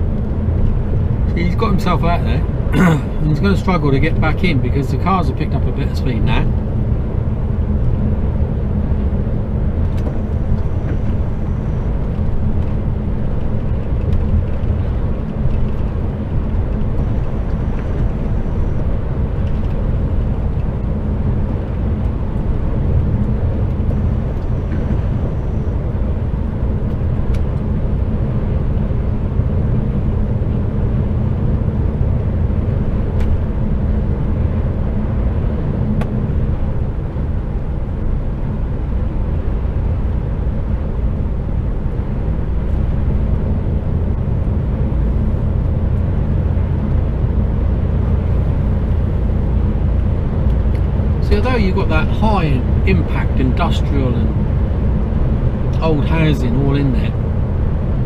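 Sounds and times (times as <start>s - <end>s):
road and tyre noise: 0.0s - 58.0s
truck engine drone: 0.0s - 58.0s.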